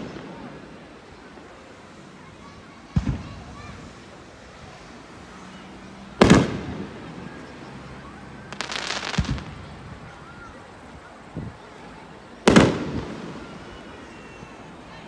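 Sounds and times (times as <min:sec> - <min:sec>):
fireworks bangs: 0:00.0 - 0:01.5, 0:02.9 - 0:04.1, 0:06.1 - 0:07.6, 0:08.4 - 0:10.5, 0:12.4 - 0:14.9
fireworks crackling: 0:00.0 - 0:15.0.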